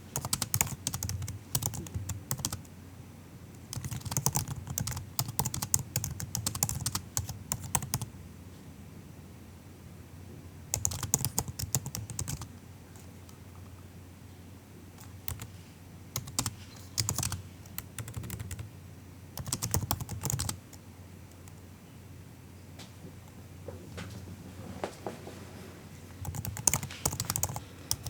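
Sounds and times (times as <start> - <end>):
laptop keyboard typing: 0.1 - 2.6, 3.7 - 8.1, 10.7 - 13.1, 15.0 - 15.5, 16.2 - 18.7, 19.4 - 20.8, 26.2 - 28.0.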